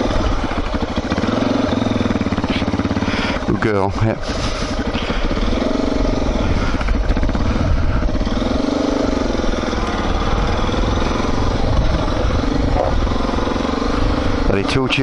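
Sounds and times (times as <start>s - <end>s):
motorcycle engine revving: 0.0s - 15.0s
wind rumble on microphone: 6.1s - 8.5s, 10.2s - 14.5s.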